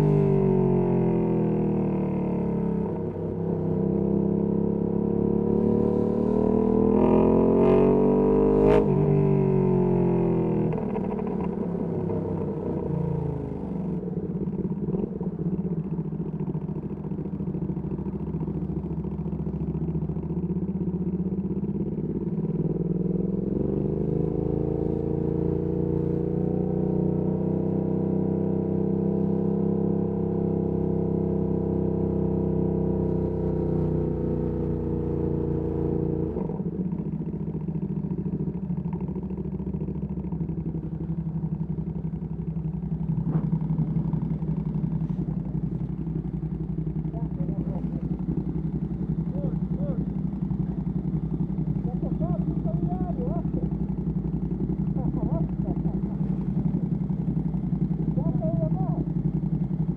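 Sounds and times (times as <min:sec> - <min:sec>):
motorcycle engine revving: 0:00.0 - 0:59.9
exhaust crack: 0:42.2 - 0:59.8.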